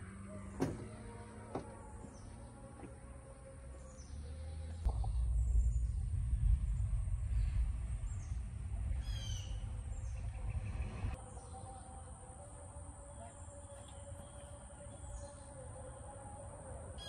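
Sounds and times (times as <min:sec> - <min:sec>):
birds chirping: 0:00.0 - 0:11.9
low rumble: 0:00.6 - 0:11.4.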